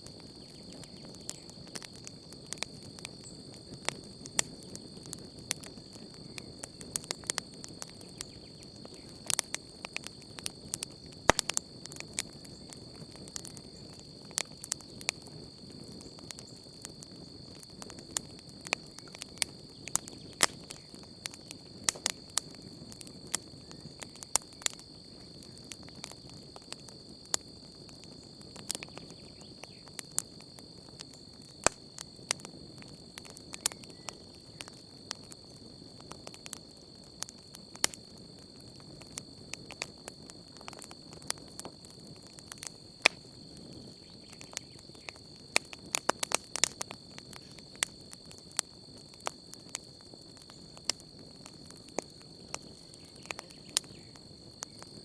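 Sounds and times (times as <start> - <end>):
campfire crackling and popping: 0.0 - 55.0
crickets chirring: 0.0 - 55.0.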